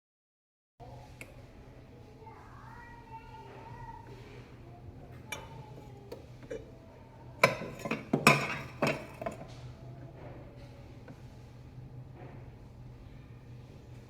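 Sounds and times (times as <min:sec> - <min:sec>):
kitchenware clattering: 0:05.2 - 0:09.6.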